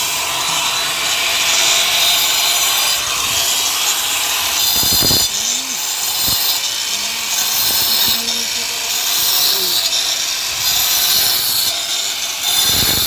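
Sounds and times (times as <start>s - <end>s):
grinder cutting into wall: 0.0s - 13.0s.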